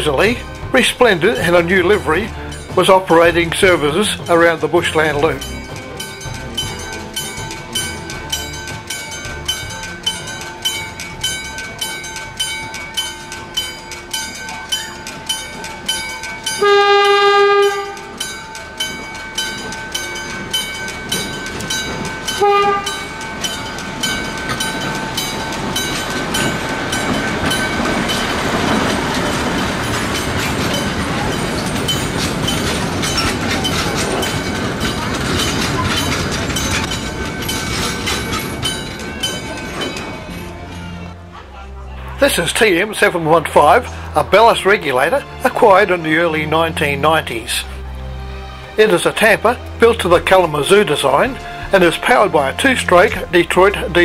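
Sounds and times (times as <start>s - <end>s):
level crossing bell ringing: 0.0s - 47.8s
carriages rolling rumble: 0.0s - 54.0s
wheels clicking on rails: 0.0s - 54.0s
locomotive horn blasts: 16.6s - 18.2s, 22.4s - 23.1s.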